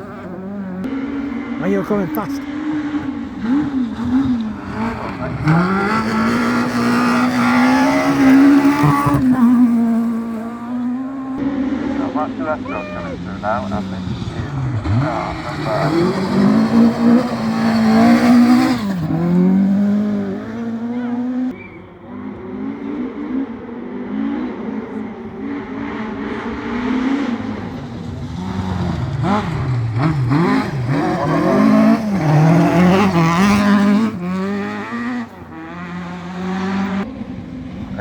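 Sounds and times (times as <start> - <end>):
rally car engines revving: 0.0 - 38.0
rally car passing: 0.0 - 38.0.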